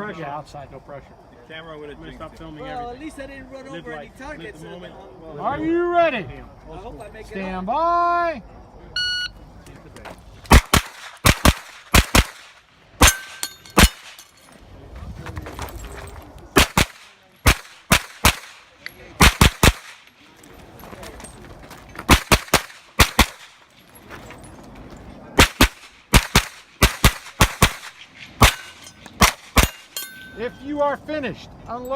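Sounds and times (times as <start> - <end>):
carbine gunshots: 10.5 - 14.2, 16.6 - 20.1, 22.1 - 23.6, 25.4 - 30.1
steel plates ringing: 13.0 - 14.4, 28.4 - 30.7.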